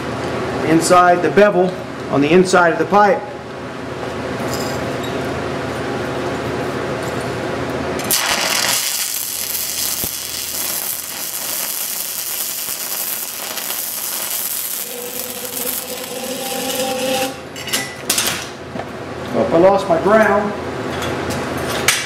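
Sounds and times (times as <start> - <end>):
welding arc crackling and hissing: 8.0 - 17.5.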